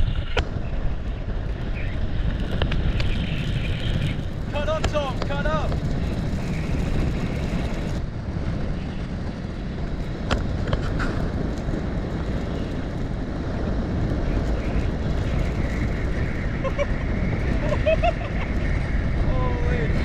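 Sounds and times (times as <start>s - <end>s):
vehicle engine and wind rumble: 0.0s - 20.0s.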